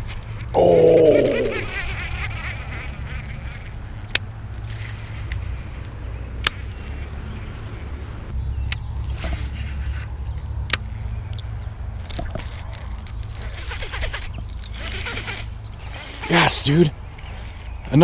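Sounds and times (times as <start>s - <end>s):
sharp single clicks: 10.3s - 12.5s.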